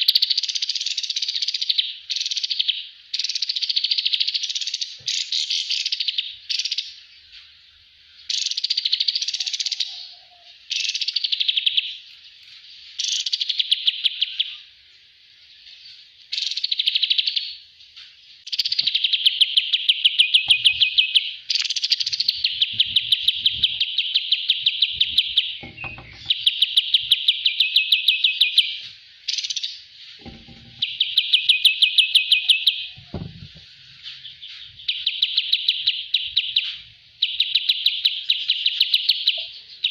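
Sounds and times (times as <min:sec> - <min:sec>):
songbird chattering trills: 0:18.4 - 0:39.9
faint low knocks: 0:24.9 - 0:26.6, 0:30.2 - 0:31.1.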